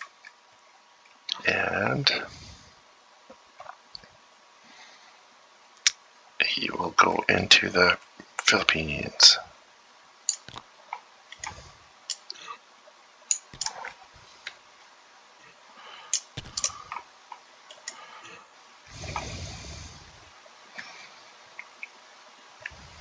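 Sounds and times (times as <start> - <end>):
sharp clicks: 16.4 - 16.8.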